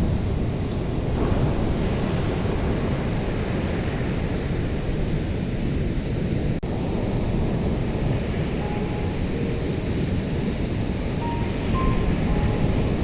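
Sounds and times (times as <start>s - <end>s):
ocean waves washing on shore: 0.0s - 13.0s.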